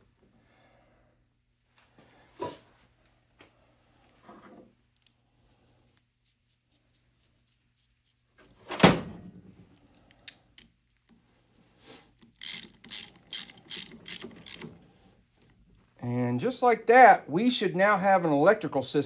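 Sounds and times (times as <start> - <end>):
ratchet strokes: 12.3 - 14.8.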